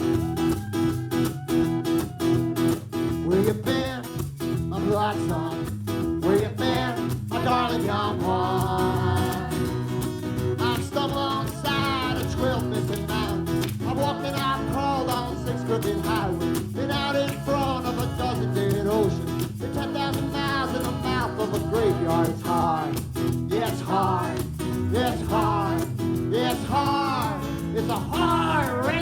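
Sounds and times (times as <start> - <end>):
acoustic guitar strummed: 0.0 - 29.0
person singing: 6.4 - 9.8, 10.6 - 29.0.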